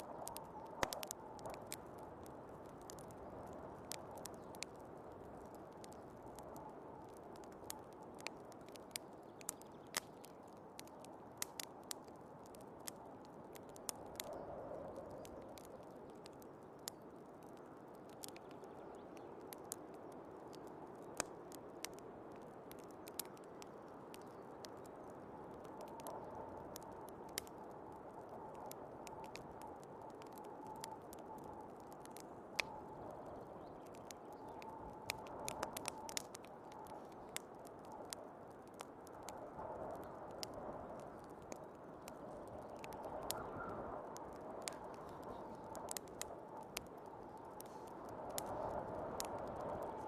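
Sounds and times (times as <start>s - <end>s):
wood fire crackling and popping: 0.0s - 50.0s.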